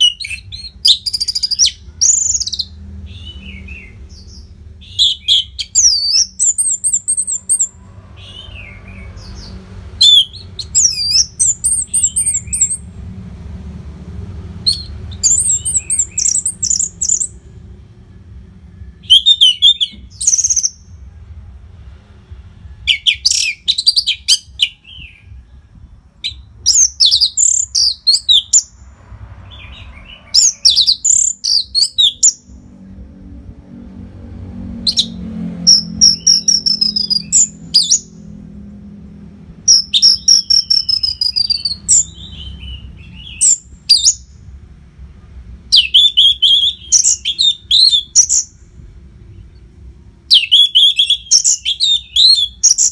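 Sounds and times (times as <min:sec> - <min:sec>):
thrush singing: 0:33.9 - 0:38.5.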